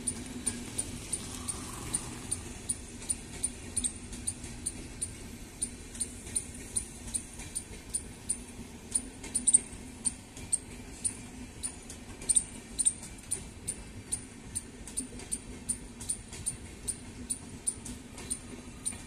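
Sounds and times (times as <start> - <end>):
sharp metallic wheel clicks: 0.0 - 19.0
train coaches rumbling past: 0.0 - 19.0.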